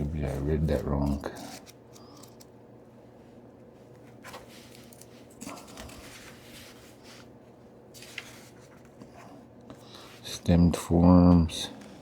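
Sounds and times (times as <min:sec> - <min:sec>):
book pages turning: 0:00.0 - 0:02.5, 0:03.9 - 0:07.3, 0:07.9 - 0:09.4.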